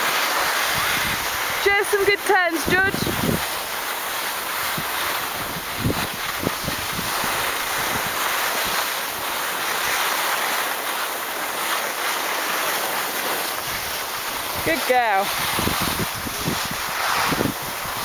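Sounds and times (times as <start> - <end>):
skis sliding over snow: 0.0 - 18.0
wind across microphone: 0.5 - 9.3, 13.5 - 18.0.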